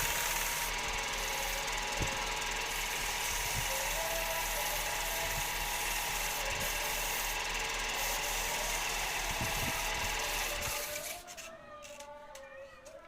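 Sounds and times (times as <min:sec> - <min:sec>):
woodworking machine rattling: 0:00.0 - 0:11.5.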